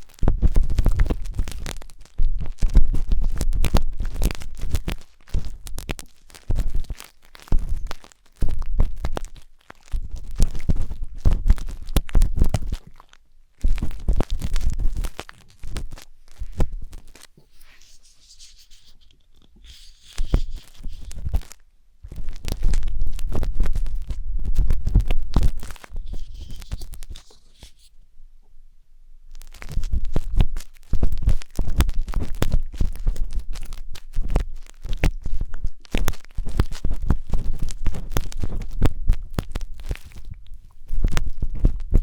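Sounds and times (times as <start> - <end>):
wooden skewer scraping microphone: 13.8 - 28.0.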